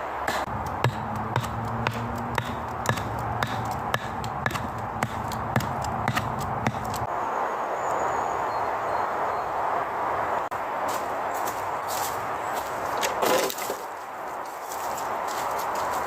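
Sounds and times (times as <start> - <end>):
rhythmic knocking: 0.2 - 7.0.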